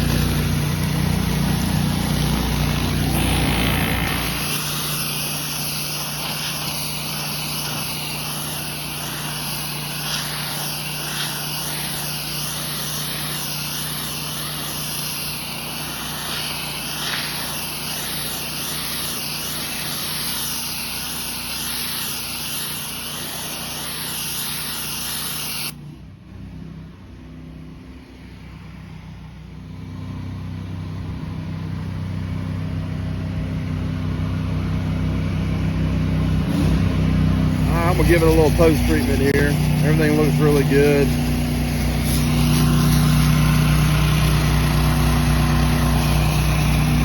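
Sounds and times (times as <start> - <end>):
high-pressure spray hiss: 0.0 - 25.8, 37.6 - 47.0
pressure washer engine running: 0.0 - 25.8, 31.7 - 47.0.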